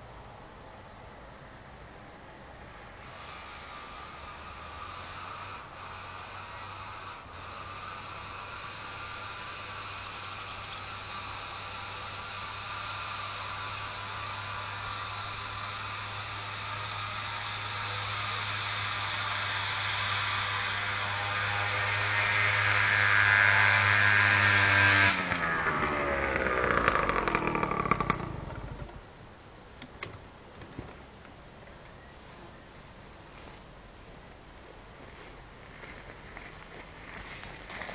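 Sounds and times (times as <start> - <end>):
engine running without exhaust: 1.9 - 29.4.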